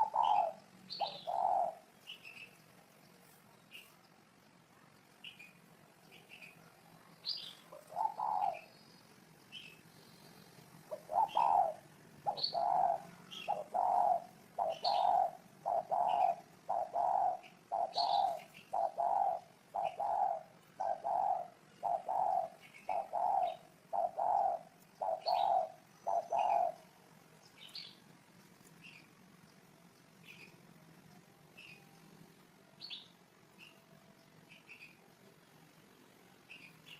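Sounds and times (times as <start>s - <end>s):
dove cooing: 0.0s - 2.5s, 7.4s - 8.7s, 9.6s - 27.0s
small birds chirping: 0.0s - 36.9s.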